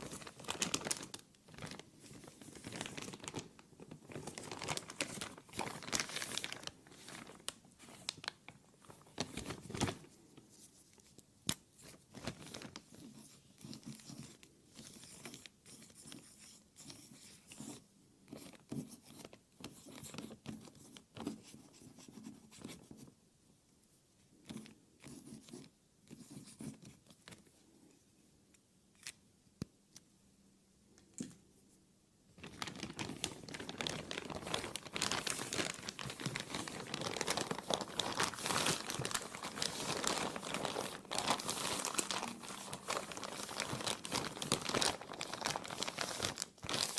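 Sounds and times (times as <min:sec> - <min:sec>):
plastic crinkling: 0:00.0 - 0:10.4, 0:11.0 - 0:15.0, 0:32.4 - 0:46.9.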